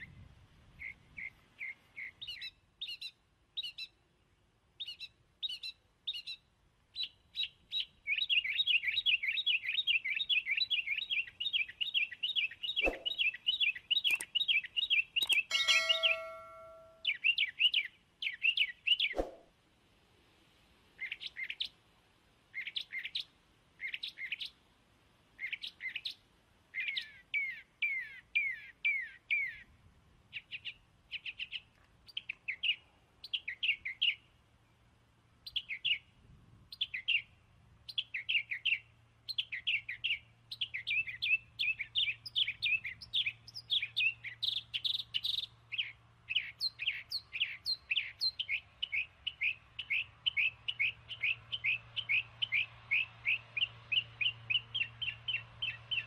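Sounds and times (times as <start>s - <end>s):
small birds chirping: 0.0s - 19.4s, 20.9s - 21.8s, 22.4s - 24.6s, 25.2s - 56.0s.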